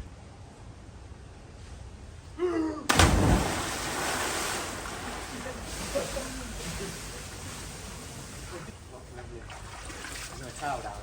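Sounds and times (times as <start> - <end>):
loud splash into pool: 2.9 - 8.6
water churning: 2.9 - 11.0.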